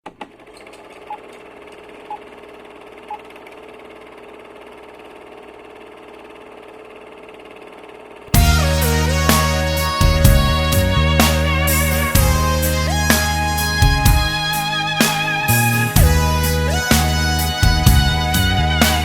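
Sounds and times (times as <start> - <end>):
loud music: 8.4 - 19.0.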